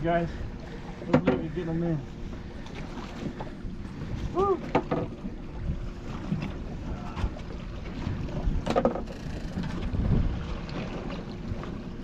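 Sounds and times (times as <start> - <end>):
boat motor running: 0.0 - 12.0
wind buffeting microphone: 9.5 - 11.0.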